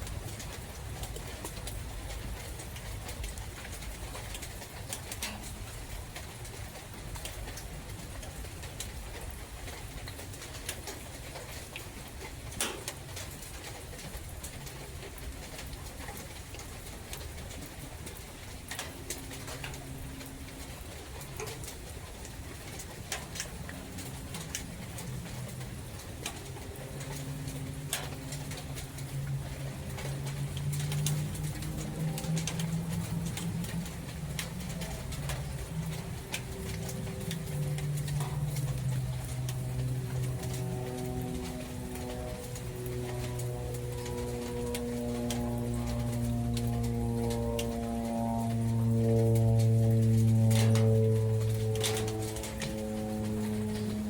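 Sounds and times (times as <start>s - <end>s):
low forest rumble: 16.6s - 54.0s.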